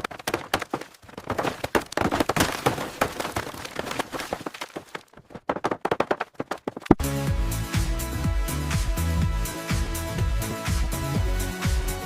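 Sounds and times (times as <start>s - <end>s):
sharp knocks and clatter: 0.0s - 7.0s.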